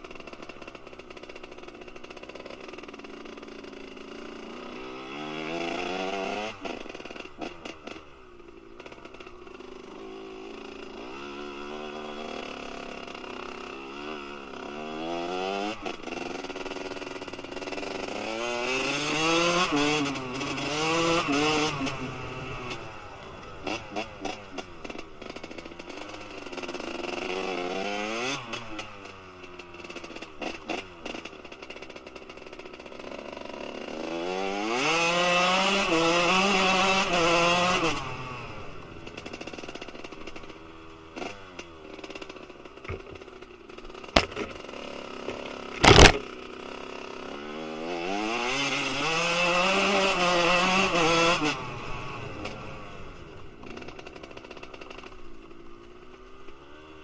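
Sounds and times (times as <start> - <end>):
motocross engine revving: 0.1 - 8.1, 8.8 - 57.0
sharp cracks: 44.0 - 46.4.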